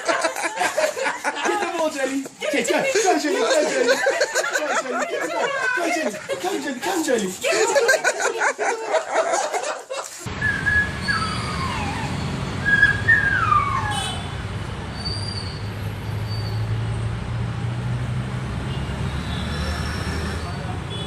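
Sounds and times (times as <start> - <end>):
low traffic rumble: 10.3 - 21.0
high whistle-like sliding tones: 10.4 - 14.0.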